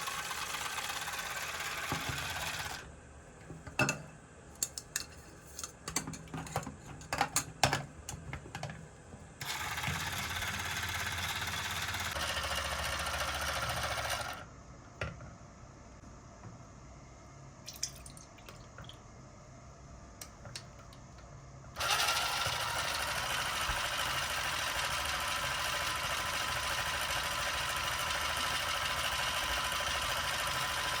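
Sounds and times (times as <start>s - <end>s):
toy appliance motor running: 0.0s - 2.9s, 9.4s - 14.4s, 21.8s - 31.0s.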